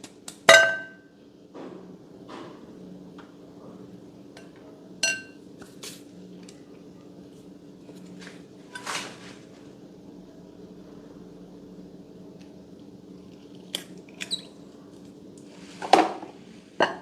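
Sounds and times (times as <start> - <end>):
steady low hum: 0.0 - 17.0
utensil clinking against dish: 4.4 - 5.4.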